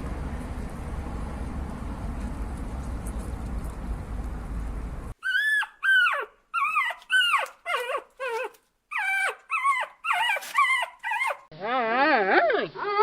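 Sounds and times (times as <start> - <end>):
dog whimpering: 5.2 - 13.0.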